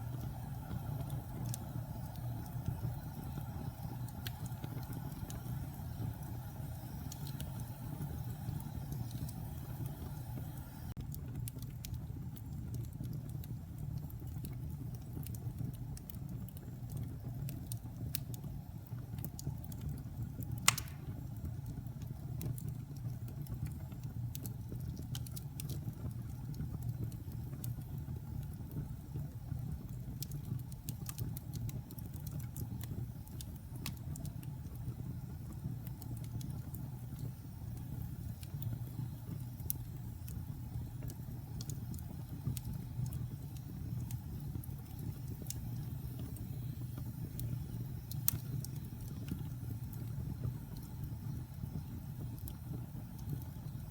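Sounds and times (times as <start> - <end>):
fire crackling: 0.0 - 53.9
fire flames rumbling: 0.0 - 53.9
loud sharp pop: 20.6 - 21.2.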